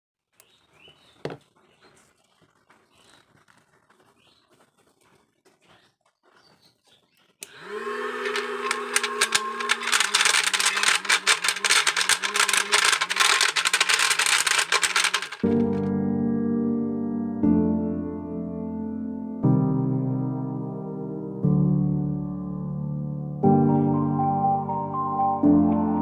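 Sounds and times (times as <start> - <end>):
crackle of clicks and rattles: 1.3 - 6.4, 8.3 - 15.9
vacuum cleaner motor whine: 7.4 - 13.5
faint scattered sounds: 9.2 - 15.7.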